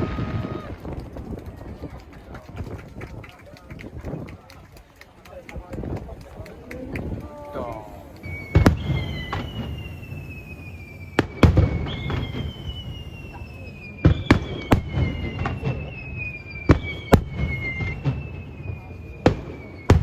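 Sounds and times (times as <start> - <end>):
descending firework whistles: 0.0 - 1.1, 7.7 - 20.0.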